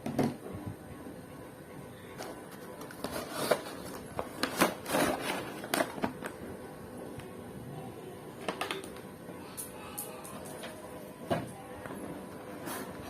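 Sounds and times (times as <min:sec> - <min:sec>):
packaging rustling and scraping: 0:02.2 - 0:06.3, 0:12.4 - 0:13.0.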